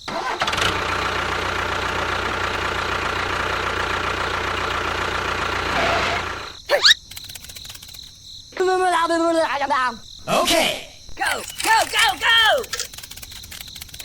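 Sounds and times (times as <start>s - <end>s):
engine rumble: 0.0s - 8.0s.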